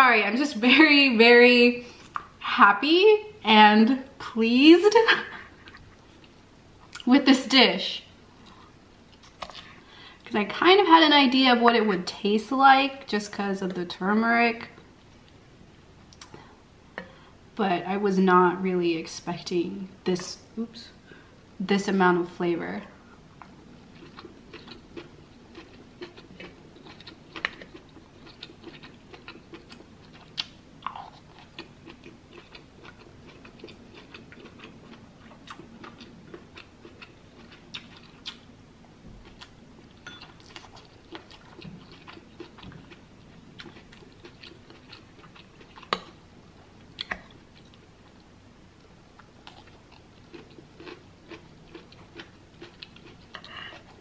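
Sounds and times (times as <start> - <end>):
woman chewing food: 23.2 - 38.6, 39.2 - 54.0.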